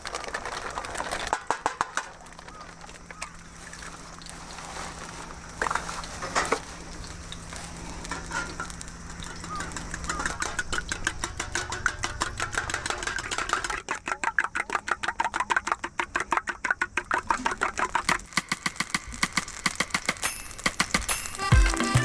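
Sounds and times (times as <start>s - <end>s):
eggs beaten in a bowl: 9.0s - 21.6s
music: 19.7s - 22.0s.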